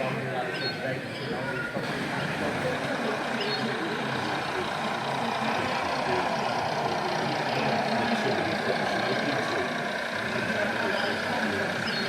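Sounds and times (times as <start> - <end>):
many people talking: 0.0 - 12.0.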